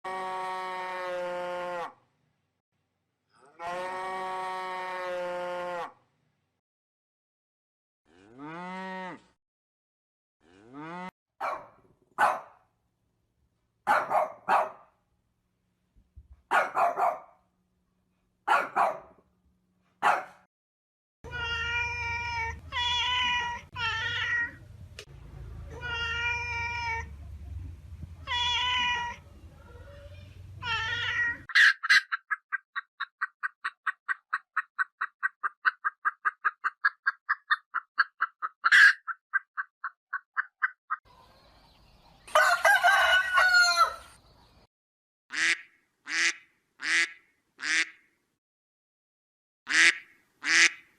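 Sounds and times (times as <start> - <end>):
cat meowing: 21.3 - 24.6, 25.7 - 27.1, 28.2 - 29.2, 30.6 - 31.5.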